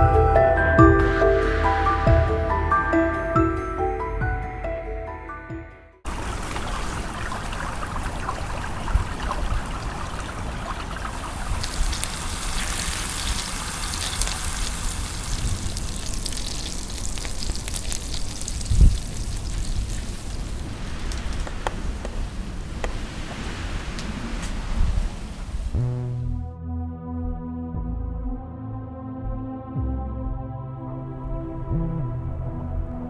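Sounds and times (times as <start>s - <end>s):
rain falling: 0.0s - 3.4s, 6.1s - 26.3s.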